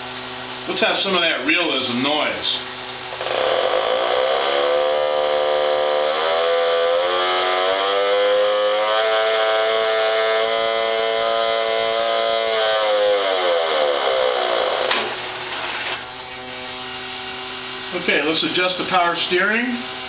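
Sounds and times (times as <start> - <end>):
small toy motor humming: 2.4 - 17.0
toy buzzing engine imitation: 3.0 - 16.1.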